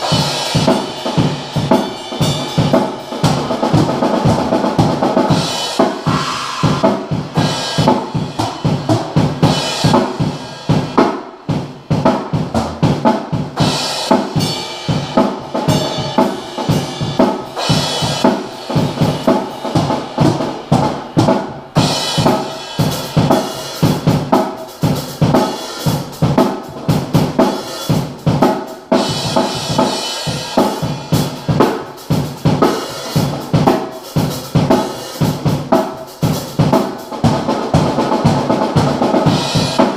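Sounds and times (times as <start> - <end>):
bass drum and snare hits: 0.0 - 22.4
cymbals crashing: 5.0 - 11.0.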